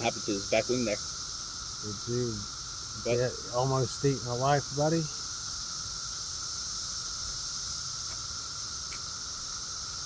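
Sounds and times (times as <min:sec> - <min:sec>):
cicadas droning: 0:00.0 - 0:10.0.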